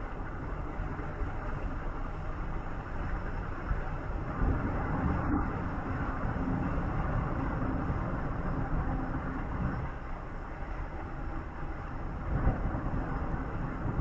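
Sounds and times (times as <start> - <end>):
faint engine hum: 0.0 - 14.0
vehicle road noise: 0.0 - 14.0.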